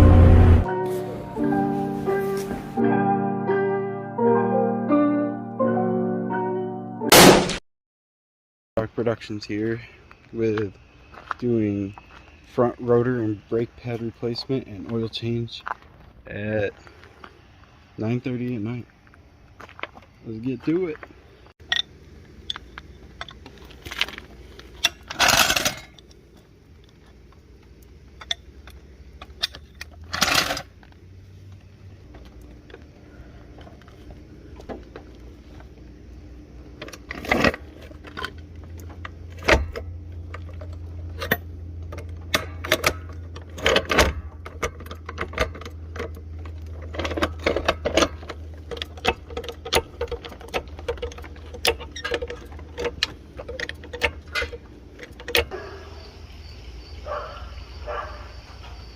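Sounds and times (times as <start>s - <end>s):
steady low hum: 0.0s - 2.7s, 8.8s - 58.9s
metal tools clinking: 21.6s - 26.5s, 28.2s - 30.7s, 36.8s - 55.8s.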